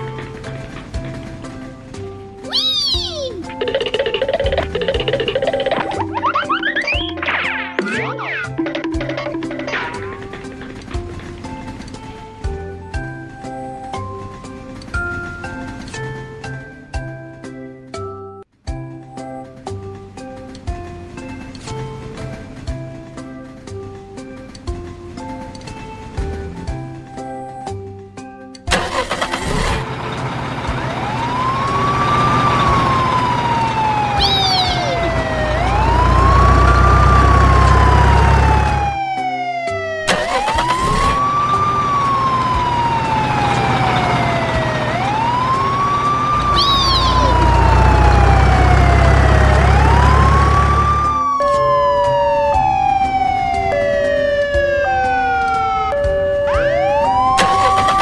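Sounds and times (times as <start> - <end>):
emergency siren wailing: 28.7 - 58.0
two-note siren: 30.6 - 58.0.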